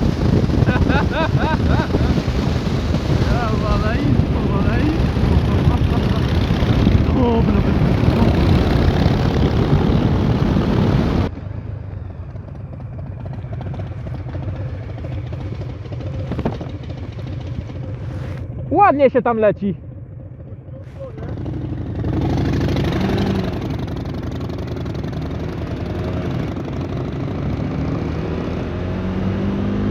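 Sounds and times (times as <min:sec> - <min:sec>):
wind rush on microphone: 0:00.0 - 0:11.3
motorcycle engine rumble: 0:00.0 - 0:27.5
motorcycle engine idling: 0:11.4 - 0:22.1.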